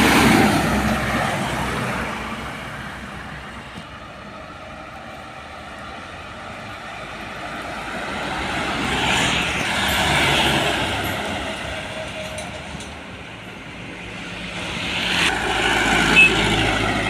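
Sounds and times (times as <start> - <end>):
vehicle passing by: 14.4 - 17.0.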